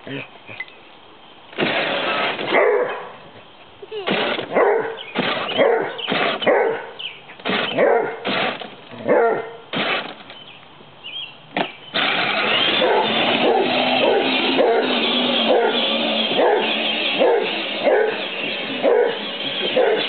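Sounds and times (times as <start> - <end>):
dog barking: 2.5 - 3.2, 4.5 - 5.0, 5.6 - 7.0, 7.8 - 8.2, 9.0 - 9.6, 12.8 - 15.8, 16.4 - 18.2, 18.8 - 20.0.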